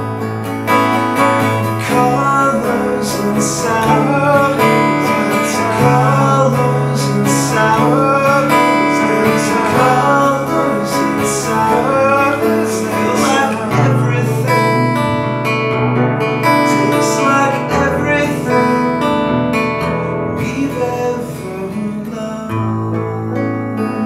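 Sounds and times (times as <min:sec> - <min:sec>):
piano chords: 0:00.0 - 0:24.0
strummed acoustic guitar: 0:00.0 - 0:24.0.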